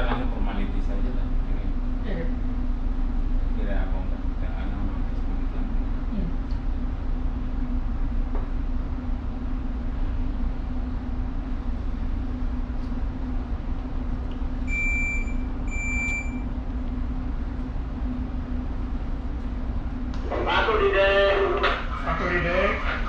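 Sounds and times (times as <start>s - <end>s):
ship engine low hum: 0.0s - 23.0s.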